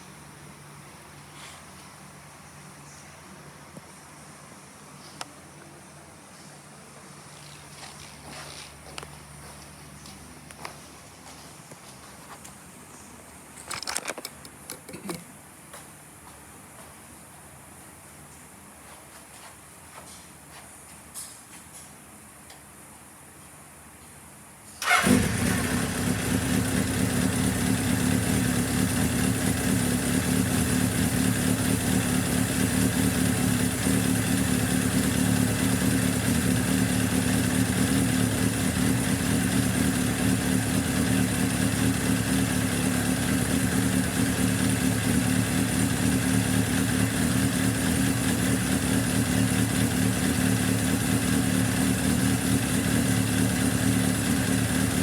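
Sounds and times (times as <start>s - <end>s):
motorcycle engine starting and running: 24.8s - 55.0s.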